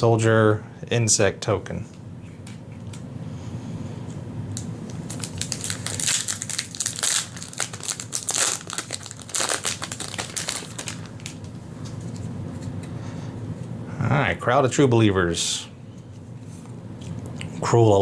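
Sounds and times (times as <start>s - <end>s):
foil wrapper crinkling: 4.9s - 12.3s.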